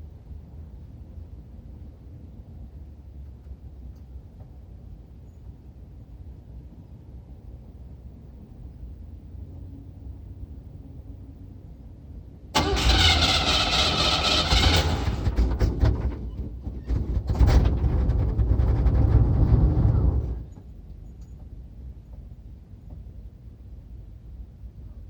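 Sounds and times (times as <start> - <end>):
car engine cranking: 12.6 - 16.3.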